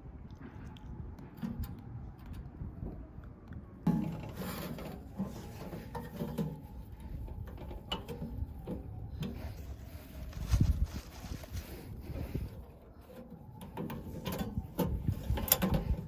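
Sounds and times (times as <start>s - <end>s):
stove parts rubbing and scraping: 3.9s - 8.6s.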